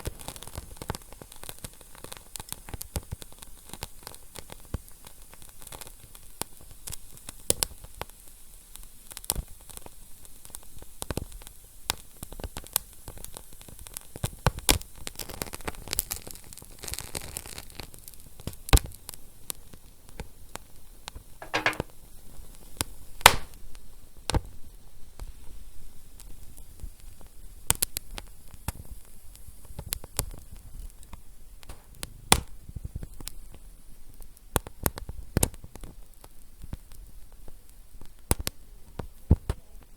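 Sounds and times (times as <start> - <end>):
wood fire crackling: 23.2 - 23.6.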